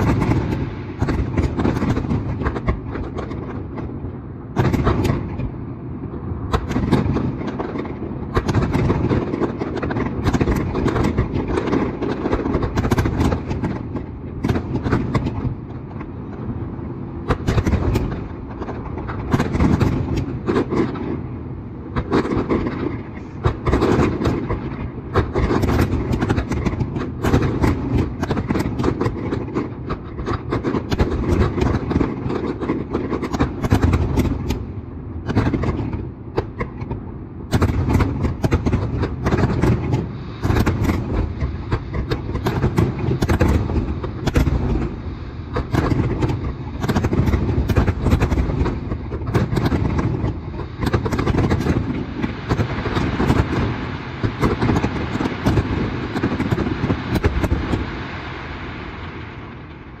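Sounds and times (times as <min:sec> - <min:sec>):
fireworks bangs and crackling: 0:00.0 - 1:00.0.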